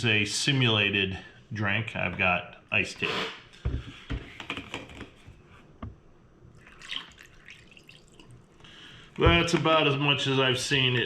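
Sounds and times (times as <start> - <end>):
tea pouring into glass: 6.5 - 8.4.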